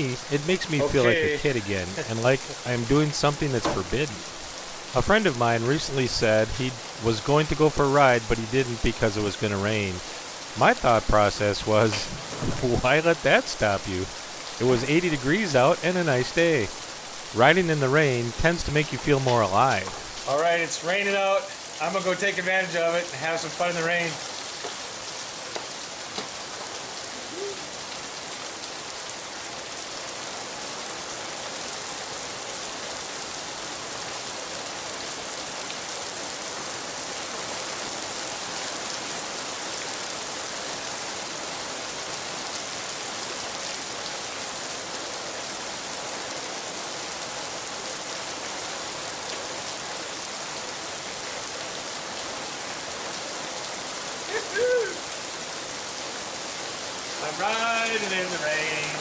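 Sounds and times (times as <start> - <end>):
rain falling: 0.0 - 59.0
person whooping: 54.3 - 55.0.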